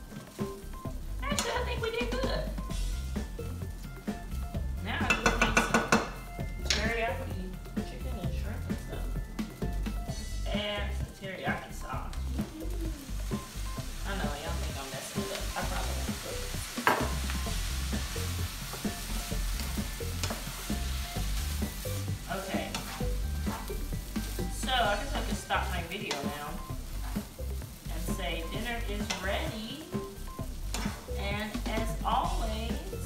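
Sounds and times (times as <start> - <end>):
fried rice sizzling in a pan: 0.0 - 33.0
wooden spatula scraping a pan: 13.2 - 32.6.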